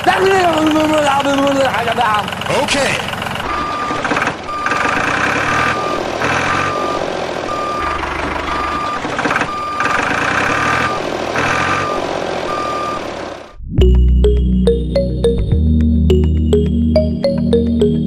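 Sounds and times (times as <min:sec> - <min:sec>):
reversing alarm beeping: 0:03.4 - 0:14.4.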